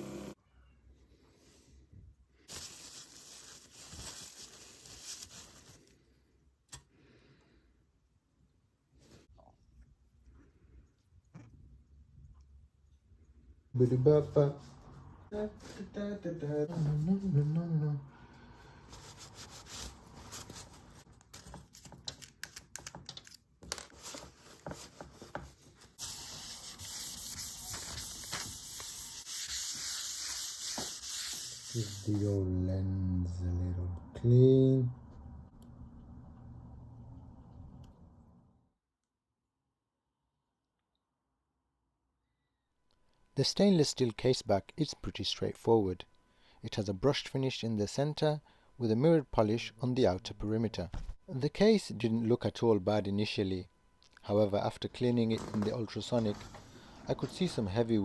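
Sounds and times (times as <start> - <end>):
hands rubbing: 24.1 - 32.2.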